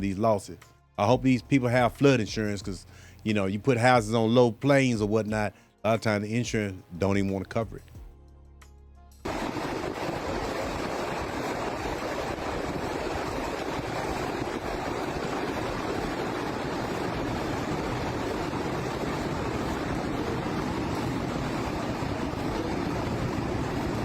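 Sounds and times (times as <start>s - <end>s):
floodwater rushing: 9.3s - 24.0s.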